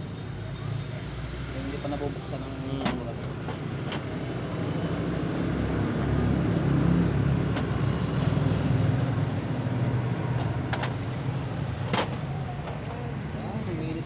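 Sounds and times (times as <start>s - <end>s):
car engine idling: 6.1s - 14.0s.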